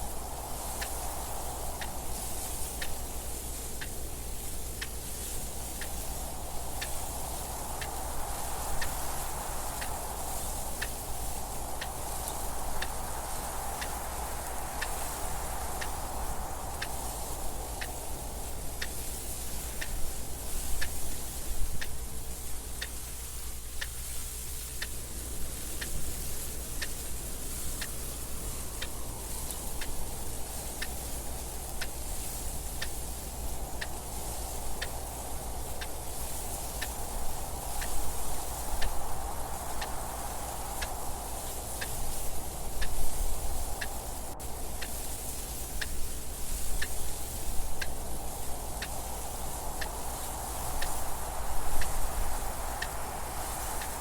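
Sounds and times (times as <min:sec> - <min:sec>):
soft wind noise: 0:00.0 - 0:54.0
clock ticking: 0:26.8 - 0:27.0, 0:27.8 - 0:28.1, 0:28.8 - 0:35.0, 0:47.8 - 0:48.0.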